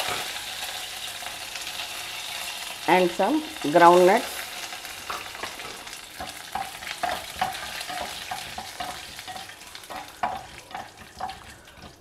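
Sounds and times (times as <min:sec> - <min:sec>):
food sizzling in oil: 0:00.0 - 0:12.0
wooden spatula scraping and stirring: 0:05.0 - 0:12.0.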